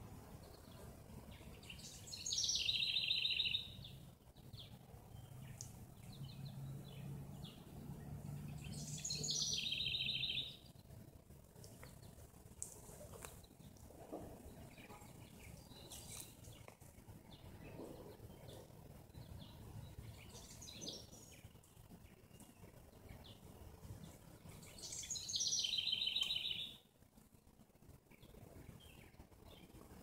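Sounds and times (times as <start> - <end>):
rapid trilled birdsong: 0.0 - 26.9, 27.8 - 30.0
songbirds chirping: 0.0 - 30.0
faint low rumble: 3.7 - 25.1.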